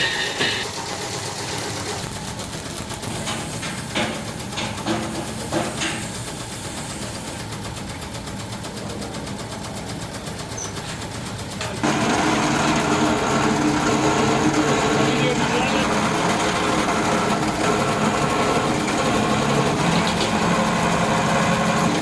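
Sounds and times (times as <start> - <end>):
factory machinery rattling: 0.0 - 22.0.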